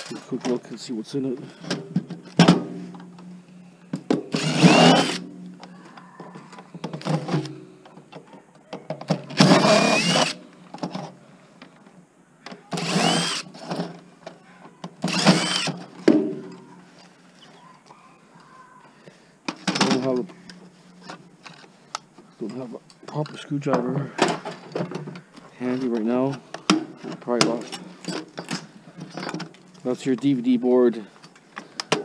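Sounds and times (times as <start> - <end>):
cordless drill whining: 4.3 - 5.2, 9.4 - 10.4, 12.7 - 13.6, 15.0 - 15.8.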